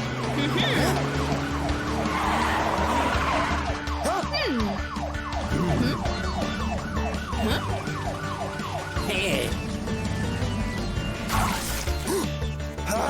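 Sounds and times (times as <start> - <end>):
police siren: 0.0 - 10.4
cartoon background music: 0.0 - 13.0.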